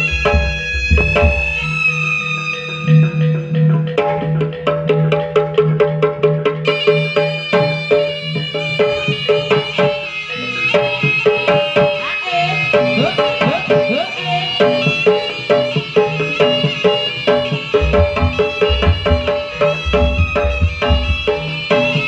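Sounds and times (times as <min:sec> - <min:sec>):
hand drums with pitch bends: 0:00.0 - 0:01.8, 0:17.7 - 0:22.0
tuned metal percussion: 0:00.0 - 0:01.8, 0:17.8 - 0:21.8
high wavering melody: 0:00.0 - 0:03.9, 0:17.7 - 0:22.0.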